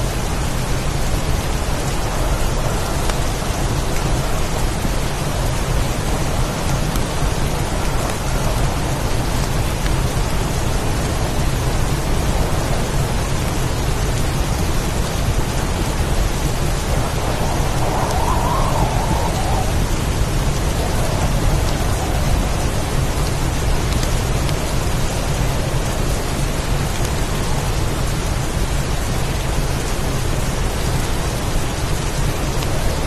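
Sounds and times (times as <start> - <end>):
heavy rain downpour: 0.0 - 33.0
wind: 0.0 - 33.0
low rumble: 14.9 - 25.1.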